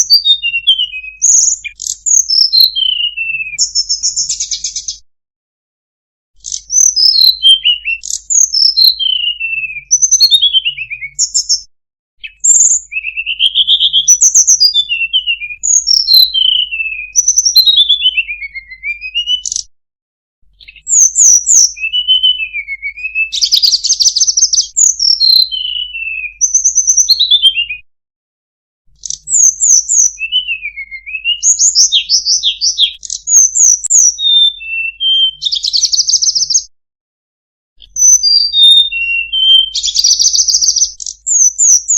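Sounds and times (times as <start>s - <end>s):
bird singing whistled notes: 0.0s - 5.0s, 6.4s - 19.7s, 20.5s - 27.9s, 28.9s - 36.7s, 37.8s - 41.9s.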